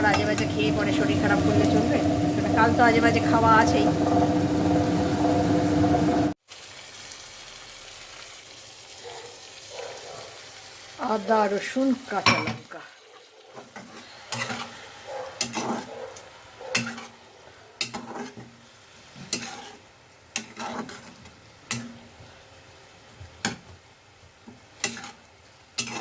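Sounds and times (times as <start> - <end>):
faint frying sizzle: 0.0 - 26.0
spatula scraping in a pot: 13.5 - 16.1, 16.7 - 17.2, 17.8 - 22.0, 24.8 - 25.2, 25.8 - 26.0.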